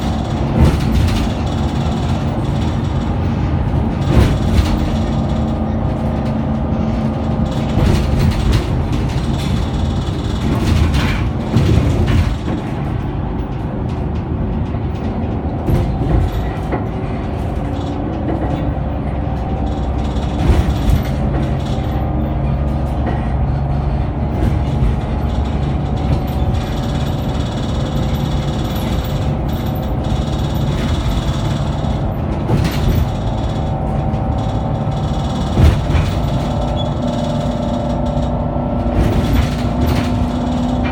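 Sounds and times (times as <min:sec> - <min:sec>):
bus engine drone: 0:00.0 - 0:40.9
knocks and rattles: 0:00.0 - 0:40.9.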